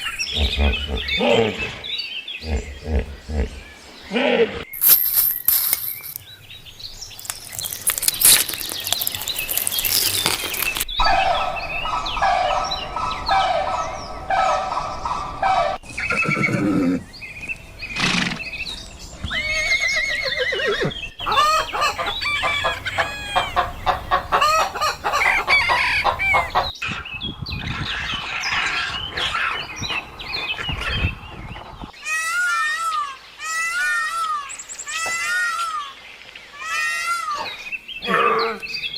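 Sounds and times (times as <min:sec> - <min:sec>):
farm animals calling: 0:19.3 - 0:26.8.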